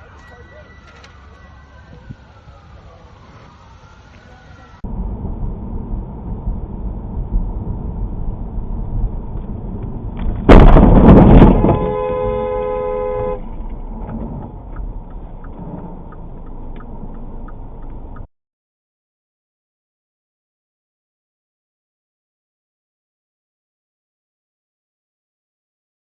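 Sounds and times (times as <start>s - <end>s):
vehicle road noise: 0.0s - 18.3s
loud burst of noise: 10.5s - 12.2s
car horn: 11.3s - 13.5s.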